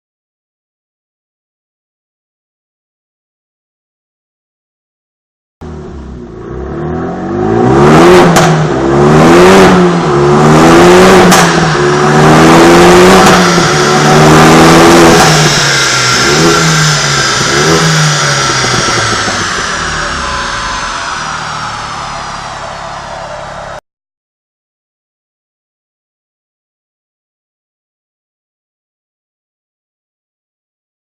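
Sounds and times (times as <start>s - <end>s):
car engine revving: 5.6s - 23.8s
exhaust cracks: 8.2s - 8.8s, 11.0s - 23.8s.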